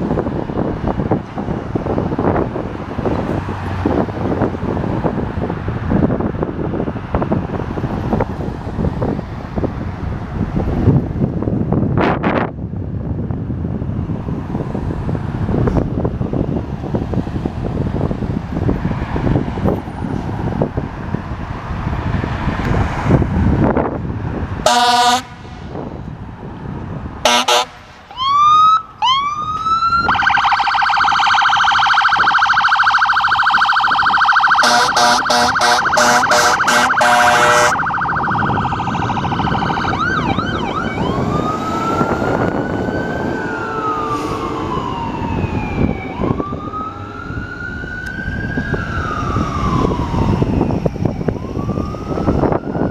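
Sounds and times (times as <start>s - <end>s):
fire engine siren: 0.0s - 9.8s, 14.0s - 18.2s, 24.6s - 26.2s, 27.2s - 52.9s
air horn blasts: 24.6s - 25.6s, 27.2s - 28.1s, 34.5s - 38.0s.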